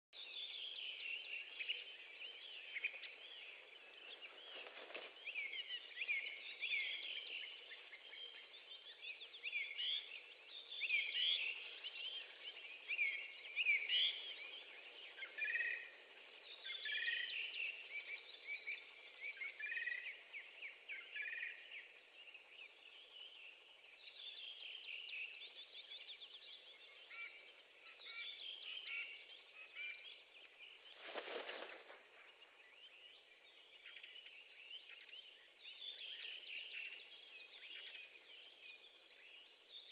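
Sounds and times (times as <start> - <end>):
faint background hiss: 0.2 - 39.9.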